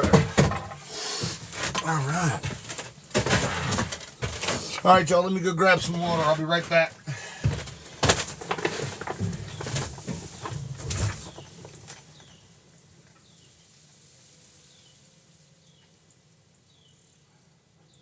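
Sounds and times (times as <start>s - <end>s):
knocks and thumps: 0.0s - 5.1s, 5.8s - 12.1s.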